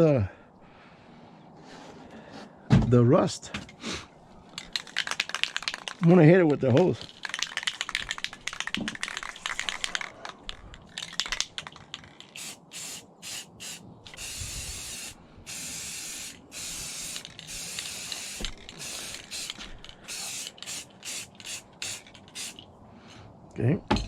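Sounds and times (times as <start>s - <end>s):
handling clicks and rattles: 4.5s - 12.4s
water spraying from hose nozzle: 12.4s - 22.6s.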